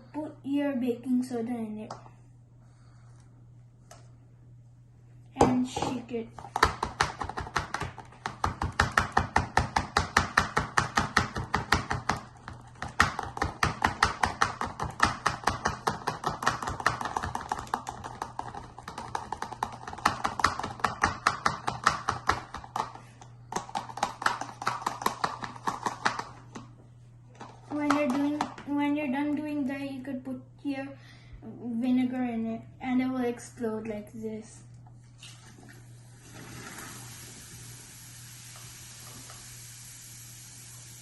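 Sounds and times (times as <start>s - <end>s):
powder rattling in a bottle: 16.6s - 20.4s.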